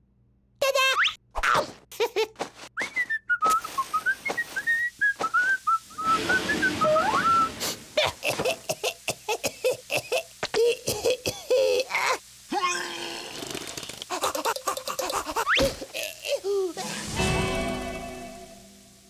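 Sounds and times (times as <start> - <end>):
person whistling a tune: 2.8 - 7.5.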